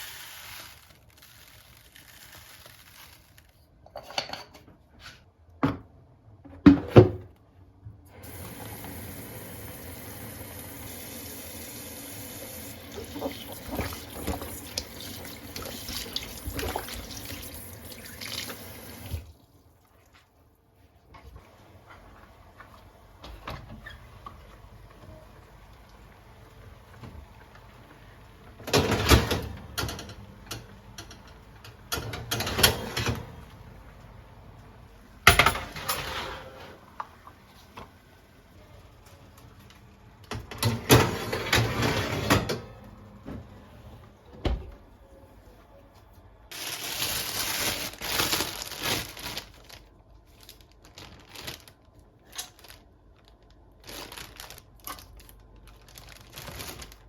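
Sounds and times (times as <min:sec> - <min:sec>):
kitchen items clattering and knocking: 0:03.8 - 0:04.8, 0:35.3 - 0:36.8.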